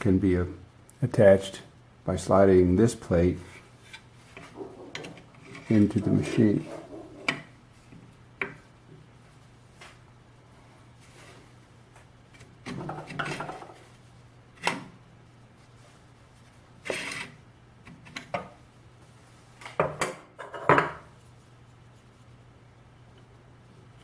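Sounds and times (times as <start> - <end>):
metal sliding scrape: 16.8 - 17.4.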